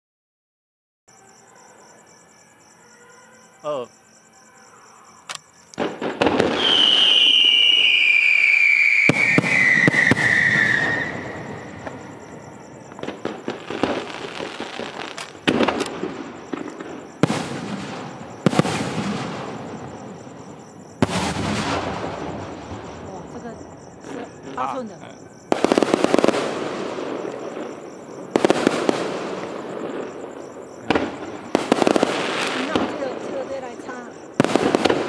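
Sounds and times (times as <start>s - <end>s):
fireworks bursting with sharp bangs: 5.3s - 35.0s
fireworks crackling: 5.3s - 35.0s
falling firework whistle: 5.7s - 23.0s.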